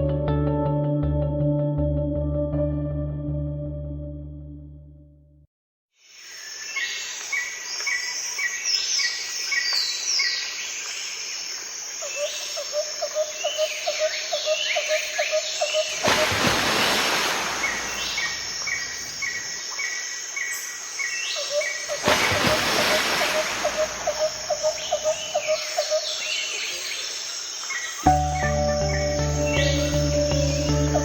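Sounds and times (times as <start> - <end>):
steady outdoor hiss: 6.0 - 31.0
burst of rushing noise: 16.0 - 18.8
lower repeated bird calls: 17.5 - 27.1.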